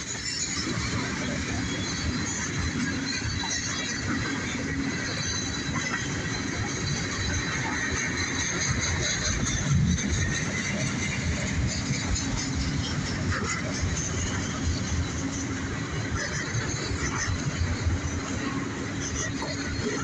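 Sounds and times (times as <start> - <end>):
faint high squeal: 0.0 - 1.1
train wheels rumbling on rails: 0.0 - 20.0.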